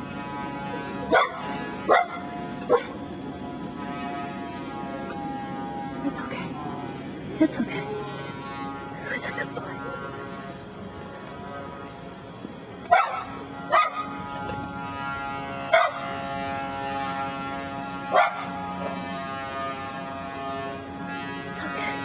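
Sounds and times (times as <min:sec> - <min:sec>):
steady hum: 0:00.0 - 0:22.0
dog barking: 0:01.1 - 0:03.0, 0:12.9 - 0:14.1, 0:15.7 - 0:16.0, 0:18.1 - 0:18.5.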